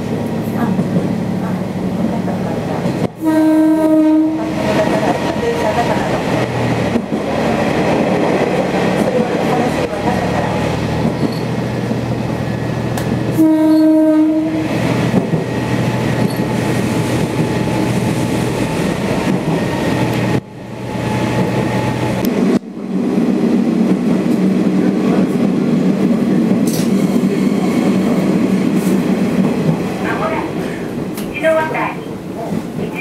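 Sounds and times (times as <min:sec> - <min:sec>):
diesel railcar engine drone: 0:00.0 - 0:33.0
rail noise: 0:00.0 - 0:33.0
train horn: 0:03.2 - 0:05.0, 0:13.3 - 0:14.7.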